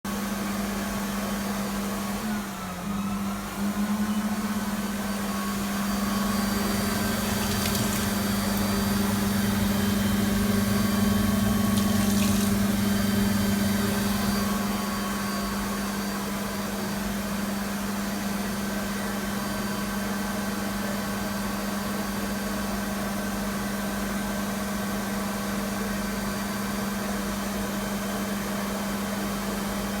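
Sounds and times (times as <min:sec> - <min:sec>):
electric hand dryer running: 0:00.1 - 0:22.0.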